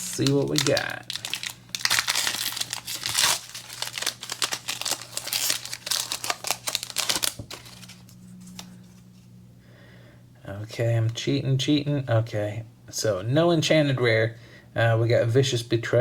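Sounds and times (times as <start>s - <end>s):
foil wrapper tearing and crinkling: 0.0s - 8.7s.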